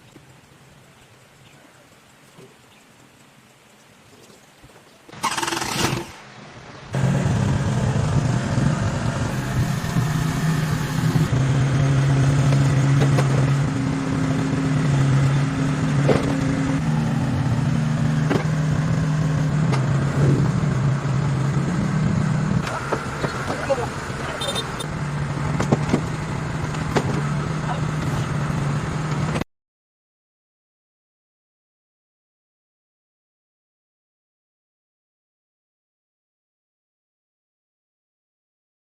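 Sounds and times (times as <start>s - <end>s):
excavator engine running: 5.1s - 29.4s
loud burst of noise: 5.2s - 11.9s.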